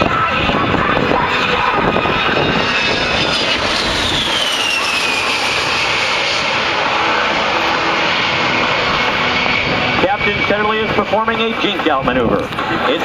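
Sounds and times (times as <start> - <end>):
jet flying past: 0.0 - 13.0.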